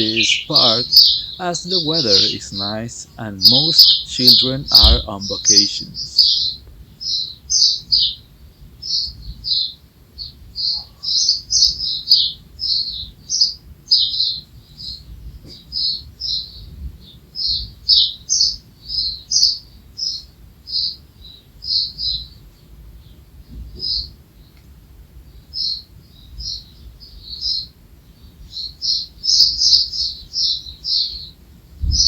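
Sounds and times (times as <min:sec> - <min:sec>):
small songbirds chirping: 0:00.0 - 0:32.0.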